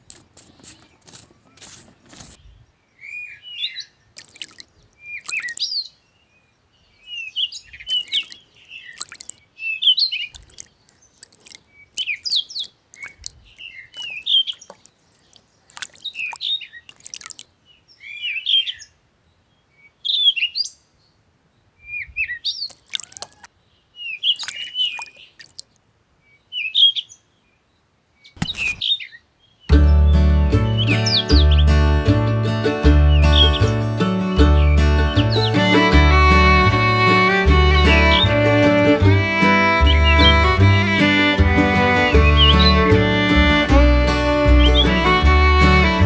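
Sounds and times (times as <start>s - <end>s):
birds chirping: 0.8s - 17.4s, 28.3s - 46.0s.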